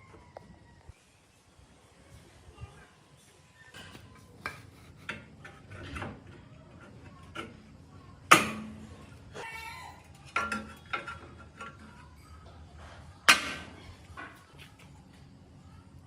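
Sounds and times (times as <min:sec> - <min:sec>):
metallic clanks and knocks: 0:08.3 - 0:09.0, 0:10.2 - 0:12.0.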